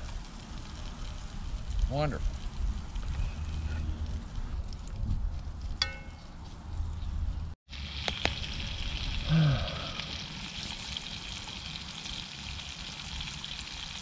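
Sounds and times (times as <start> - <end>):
potatoes sizzling in oil: 0.0 - 4.0, 7.7 - 14.0
man humming: 9.2 - 10.0.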